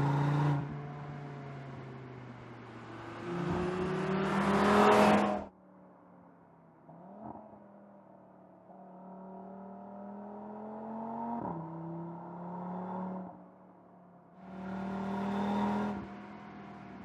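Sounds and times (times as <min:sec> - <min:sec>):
car engine accelerating: 0:00.0 - 0:02.0, 0:02.6 - 0:05.5, 0:14.4 - 0:17.0.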